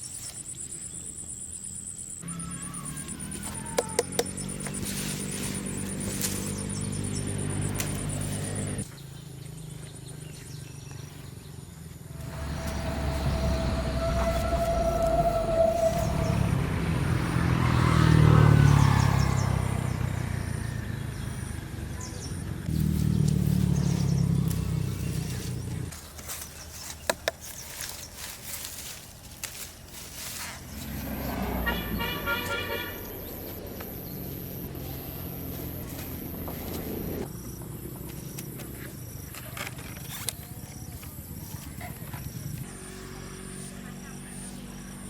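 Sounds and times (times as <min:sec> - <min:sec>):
vehicle engine passing: 0:04.1 - 0:08.9, 0:11.9 - 0:25.9, 0:29.6 - 0:39.2
high warbling horn tone: 0:12.1 - 0:18.6.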